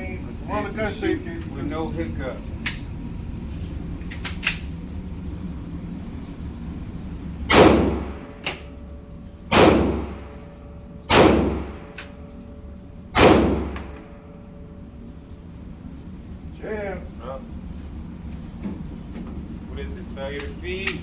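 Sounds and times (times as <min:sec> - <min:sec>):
pistol shots with reverberant tail: 0:07.5 - 0:08.6, 0:09.5 - 0:10.4, 0:11.1 - 0:12.1, 0:13.2 - 0:14.2.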